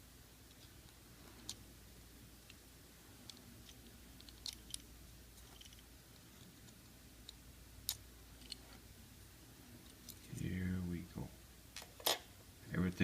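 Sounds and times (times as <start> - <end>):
low room hum: 0.0 - 13.0
plastic parts clicking: 3.2 - 4.9, 5.5 - 8.6.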